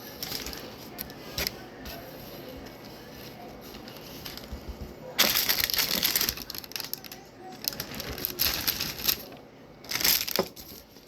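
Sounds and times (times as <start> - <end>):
food wrapping crinkling: 0.0 - 2.0, 5.2 - 11.0.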